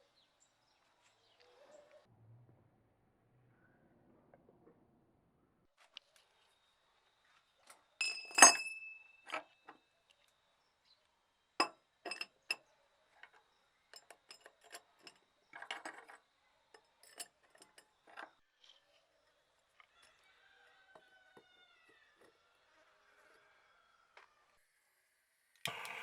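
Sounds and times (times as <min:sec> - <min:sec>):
hard objects clinking and tapping: 0:08.0 - 0:09.7, 0:11.6 - 0:12.6, 0:13.2 - 0:18.4.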